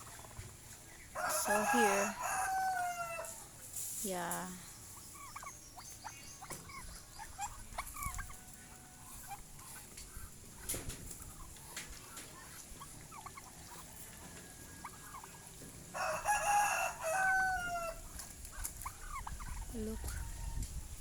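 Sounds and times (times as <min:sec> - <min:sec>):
chickens clucking and peeping: 0:00.0 - 0:21.0
rooster crowing: 0:01.2 - 0:03.5, 0:15.9 - 0:18.0.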